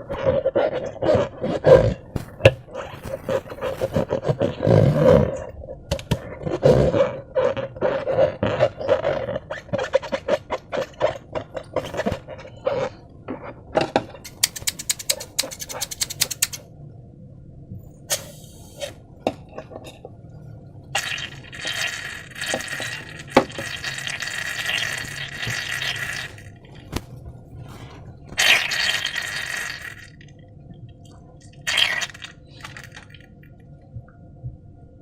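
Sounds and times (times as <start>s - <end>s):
rapid fine crackles: 2.2s - 5.2s
slime squelching and clicking: 14.3s - 16.6s.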